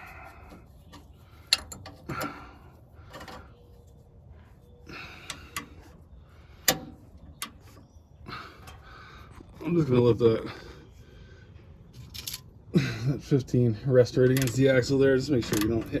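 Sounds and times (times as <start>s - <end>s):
wrenches clicking on bolt: 0.9s - 2.5s, 6.6s - 7.8s, 14.2s - 16.0s.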